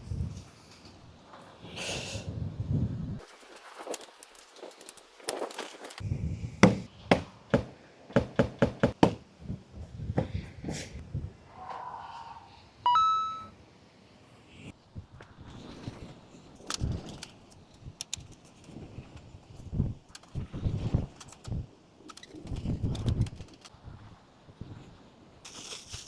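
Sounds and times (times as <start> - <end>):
soft noisy rustle: 3.2 - 6.0
brief ringing tone: 12.9 - 13.6.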